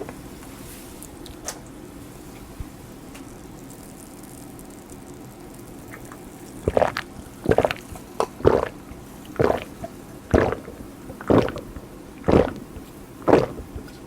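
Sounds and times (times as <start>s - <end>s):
person gulping a drink: 6.6s - 14.0s.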